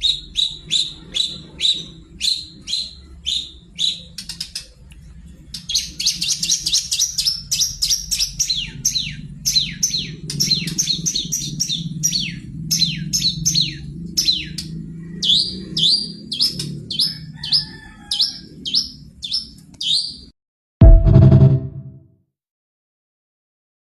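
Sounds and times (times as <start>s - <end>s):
loud low buzzing burst: 20.8s - 22.0s.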